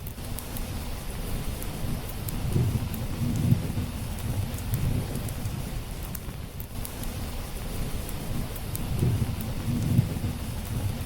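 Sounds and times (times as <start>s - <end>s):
steady rain: 0.0s - 11.0s
distant thunder rumbling: 2.4s - 5.7s, 8.9s - 11.0s.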